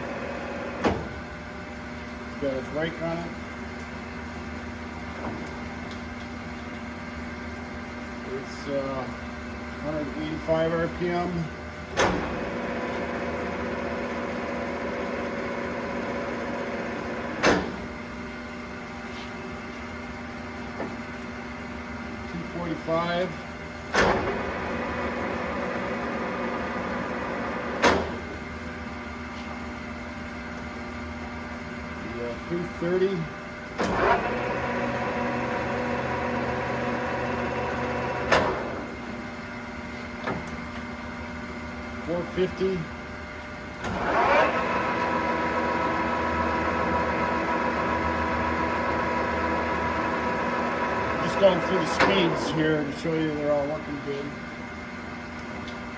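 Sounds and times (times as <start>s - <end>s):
lathe running with gear whine: 0.0s - 0.8s, 8.0s - 17.4s, 24.3s - 27.8s, 31.4s - 39.3s, 43.8s - 55.1s
lathe gear clunk: 15.9s - 18.0s, 23.9s - 28.3s, 37.9s - 39.0s, 50.3s - 52.6s
lathe running: 43.9s - 54.4s.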